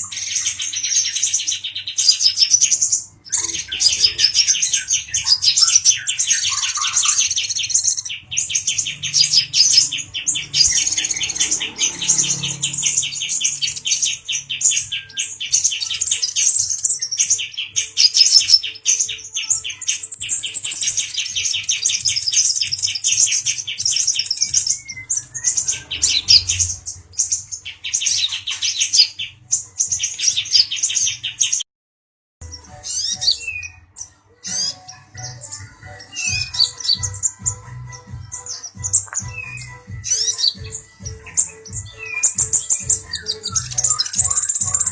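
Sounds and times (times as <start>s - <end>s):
sunbird twittering trills: 34.5s - 44.9s.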